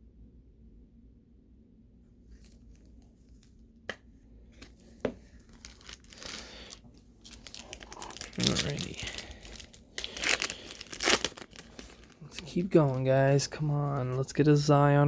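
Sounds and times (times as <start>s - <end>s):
plastic and foil packaging crinkling: 4.7s - 14.5s.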